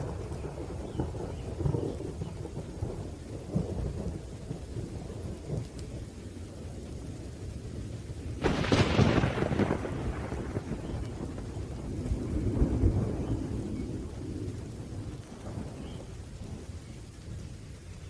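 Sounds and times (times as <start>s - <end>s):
rain: 0.0s - 18.0s
rolling rumble of thunder: 0.0s - 18.0s
loud crack of thunder: 8.4s - 15.8s.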